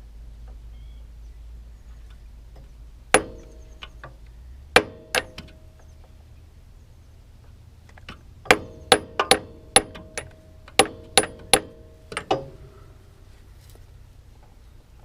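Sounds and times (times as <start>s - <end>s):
hammer striking metal: 3.1s - 4.0s, 4.8s - 5.9s, 8.5s - 12.6s.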